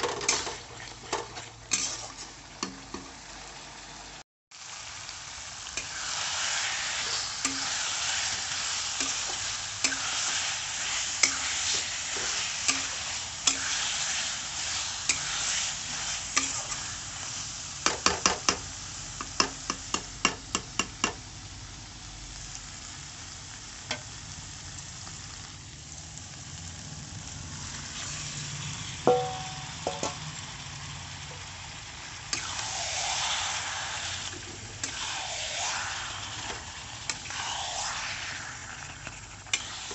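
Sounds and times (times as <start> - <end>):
spatula scraping a pan: 0.0 - 2.8, 5.8 - 17.0, 34.8 - 35.8, 38.6 - 39.9
food sizzling in a pan: 0.0 - 39.9.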